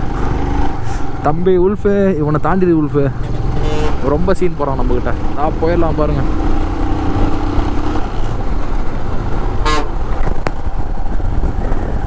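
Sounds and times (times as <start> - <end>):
motorcycle engine and wind rumble: 0.0 - 12.0
vehicle horn: 3.3 - 4.2, 9.6 - 10.1.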